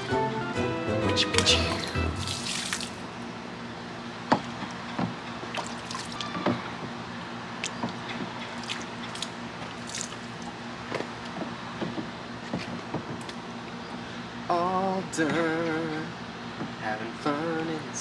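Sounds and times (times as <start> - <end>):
faint steady hum: 0.0 - 18.0
water splashing and dripping: 1.4 - 3.1, 5.4 - 6.5, 7.6 - 10.6.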